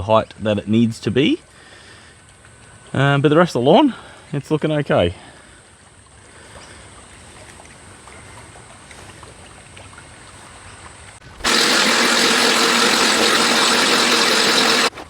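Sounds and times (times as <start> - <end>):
lawn mower running: 11.3 - 15.0.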